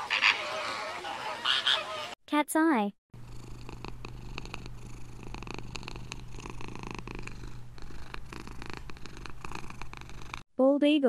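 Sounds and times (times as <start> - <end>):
cat purring: 3.2 - 10.4.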